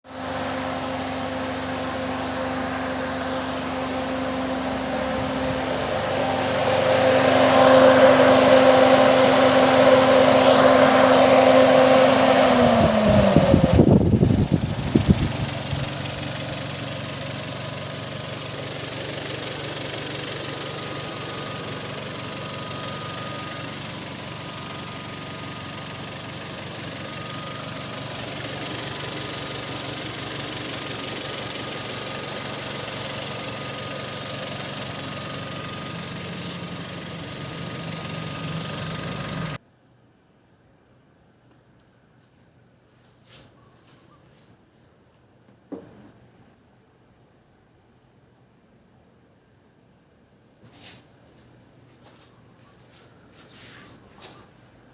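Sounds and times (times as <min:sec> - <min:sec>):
car engine idling: 0:00.1 - 0:39.6.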